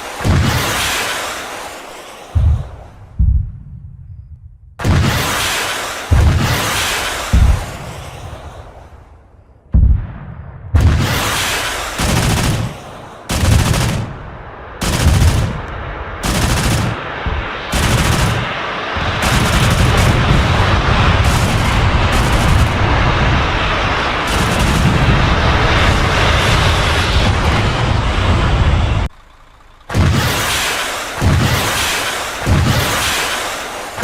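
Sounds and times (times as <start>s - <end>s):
autocannon bursts firing: 10.8s - 23.1s, 24.2s - 25.2s, 29.1s - 34.0s.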